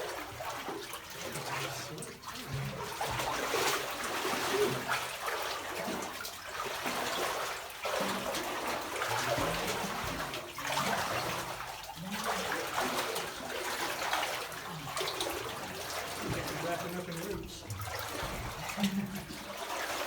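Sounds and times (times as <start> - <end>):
legs wading through water: 0.0 - 20.0.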